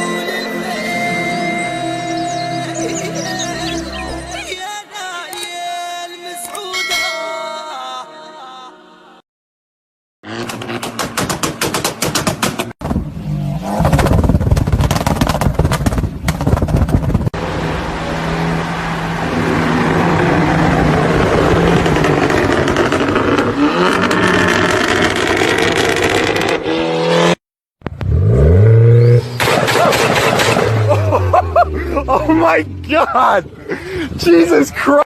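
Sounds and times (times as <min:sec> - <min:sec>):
loud modified engines revving: 0:10.2 - 0:11.2, 0:17.3 - 0:34.3.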